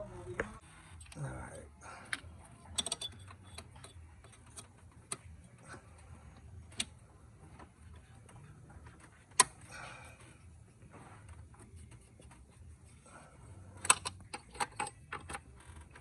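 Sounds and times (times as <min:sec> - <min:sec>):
metal tools clicking: 0:02.7 - 0:04.6.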